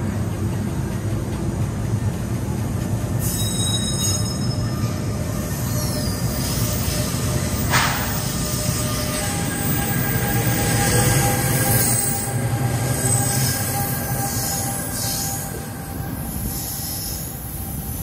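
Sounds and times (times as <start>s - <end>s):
train rumbling: 0.0s - 18.0s
wheel squeal: 3.2s - 15.5s.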